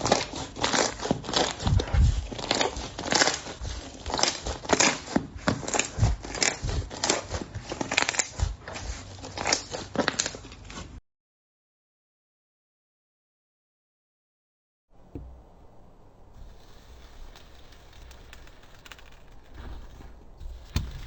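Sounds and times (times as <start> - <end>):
slime crackling and popping: 16.3 - 21.0.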